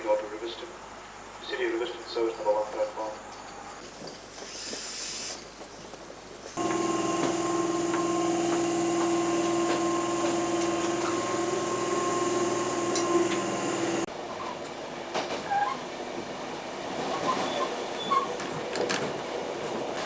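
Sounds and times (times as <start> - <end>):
steady mechanical hum: 6.6 - 14.4.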